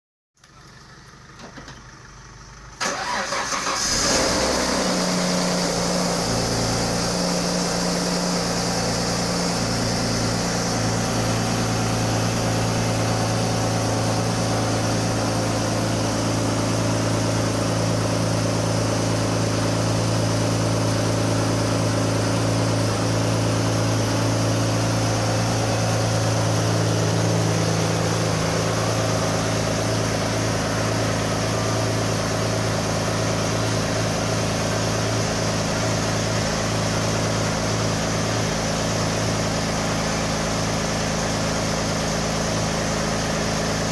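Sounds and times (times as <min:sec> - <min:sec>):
car engine starting and idling: 0:00.4 - 0:43.9
starter motor cranking: 0:02.8 - 0:04.2.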